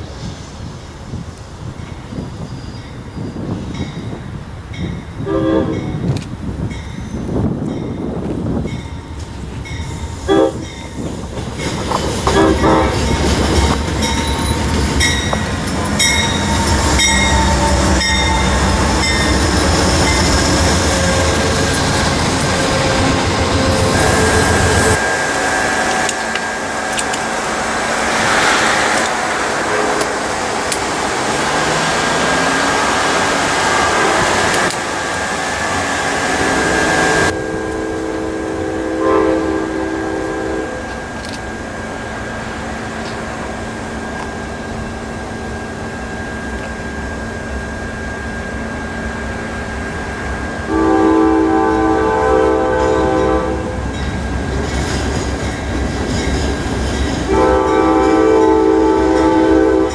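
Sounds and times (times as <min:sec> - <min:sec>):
diesel locomotive rumble: 0:00.0 - 0:59.9
steady high whine: 0:14.7 - 0:33.2
wheels clicking over rail joints: 0:25.8 - 0:27.4, 0:29.9 - 0:33.5, 0:34.1 - 0:35.5.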